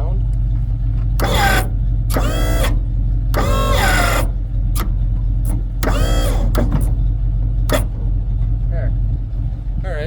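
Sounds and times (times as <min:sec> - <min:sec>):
tow truck engine idling: 0:00.0 - 0:09.8
short mechanical whines: 0:01.2 - 0:08.0.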